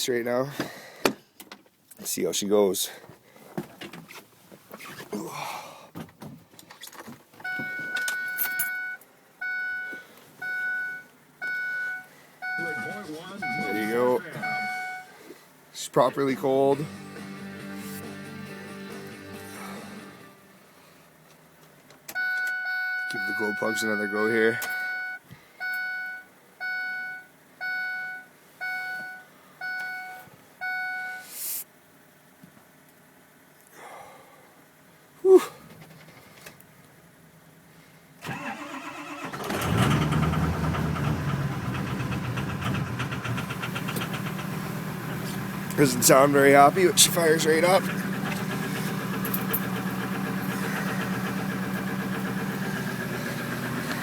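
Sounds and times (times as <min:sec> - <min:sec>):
electronic warning chime: 0:07.5 - 0:15.1, 0:22.2 - 0:31.2
keys jangling in ignition: 0:08.0 - 0:08.8
short hiss: 0:31.2 - 0:31.7.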